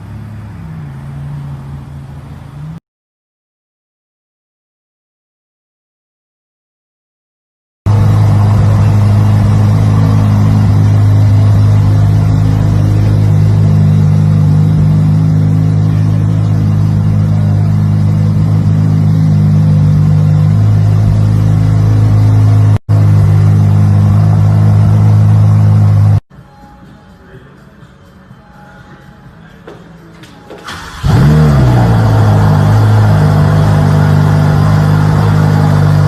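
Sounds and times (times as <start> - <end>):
loud car exhaust drone: 0.0 - 2.8, 7.9 - 26.2, 30.7 - 36.0.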